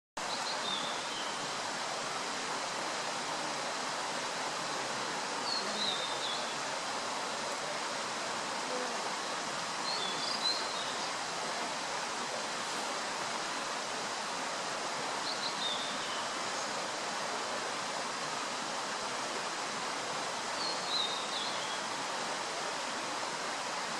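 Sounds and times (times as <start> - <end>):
bird singing warbled phrases: 5.4 - 6.6, 9.8 - 11.1.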